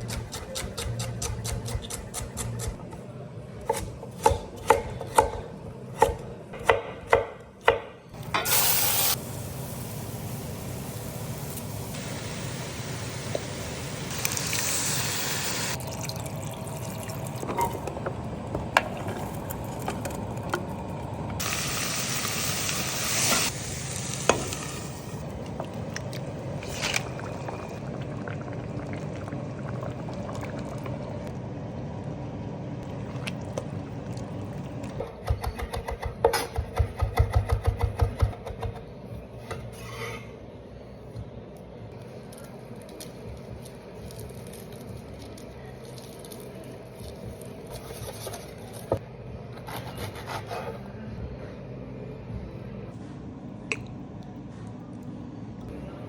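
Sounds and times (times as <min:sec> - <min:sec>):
food sizzling in pans: 0:08.4 - 0:15.8, 0:21.4 - 0:25.2.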